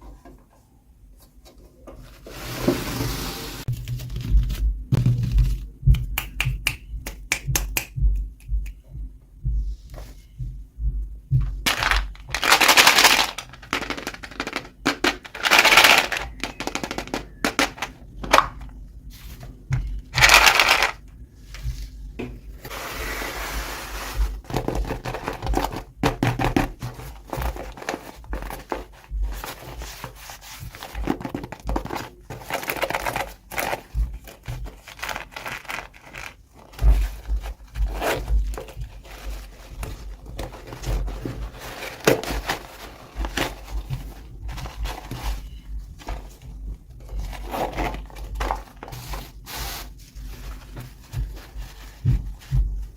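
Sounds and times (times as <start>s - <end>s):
scrapes: 2.0s - 4.2s, 26.9s - 52.9s
packaging crinkling: 11.7s - 18.7s, 20.2s - 21.0s, 27.1s - 52.9s.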